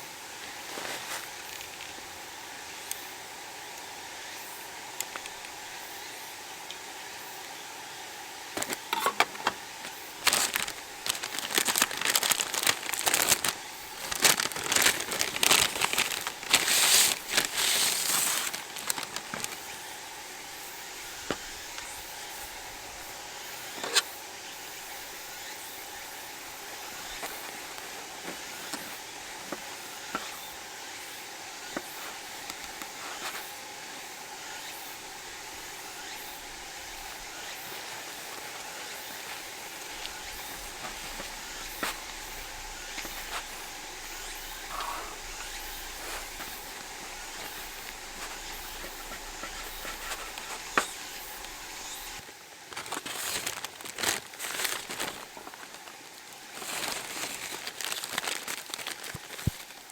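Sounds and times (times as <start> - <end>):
steady hiss with sharp pops: 0.0 - 59.9
loud crumpling and crackling: 8.6 - 20.5, 35.0 - 59.9.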